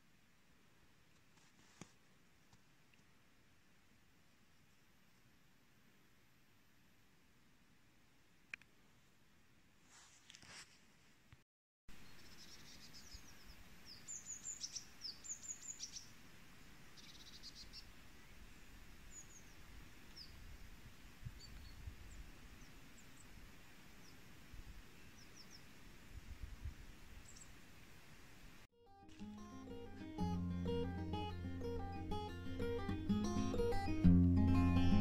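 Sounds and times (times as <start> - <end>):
steady outdoor hiss: 0.0 - 11.3, 11.9 - 35.0
songbirds chirping: 11.9 - 20.5, 21.3 - 25.8.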